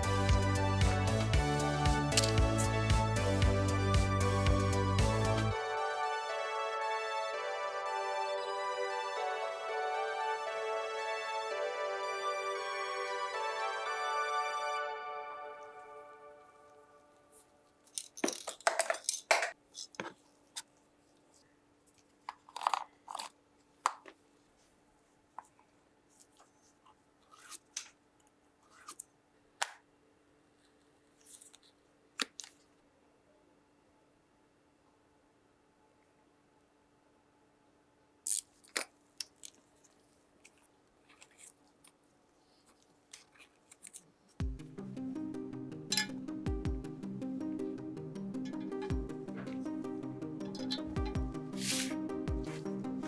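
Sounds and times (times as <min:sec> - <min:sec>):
background music: 0:00.0 - 0:17.4, 0:44.4 - 0:53.0.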